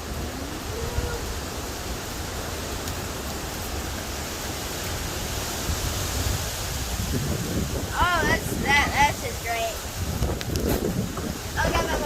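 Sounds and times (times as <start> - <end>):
driving rain: 0.0 - 12.0
hurricane wind: 0.0 - 12.0.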